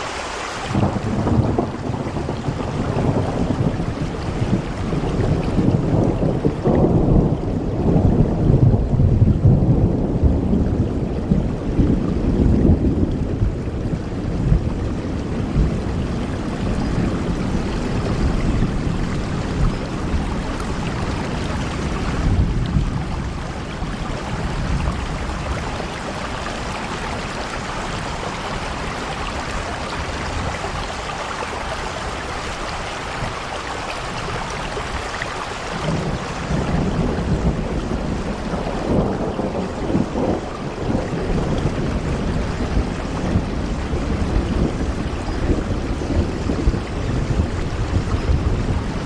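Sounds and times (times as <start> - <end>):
rain on a window: 0.0 - 49.0.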